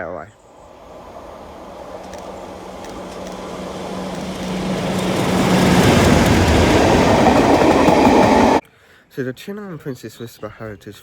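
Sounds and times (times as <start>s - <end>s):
train rumbling past: 0.4s - 8.6s.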